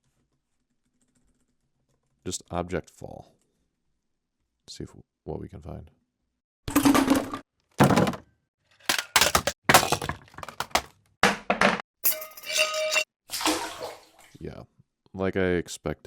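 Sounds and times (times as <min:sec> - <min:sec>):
objects breaking: 0:06.7 - 0:08.2, 0:08.8 - 0:13.1
objects thudding on ground: 0:06.7 - 0:08.2, 0:08.9 - 0:11.8.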